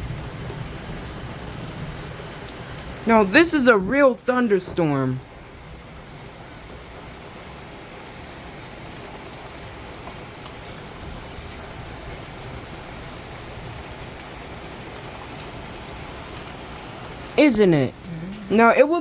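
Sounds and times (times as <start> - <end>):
heavy rain pouring: 0.0 - 19.0
sharp raindrop ticks: 8.9 - 11.6.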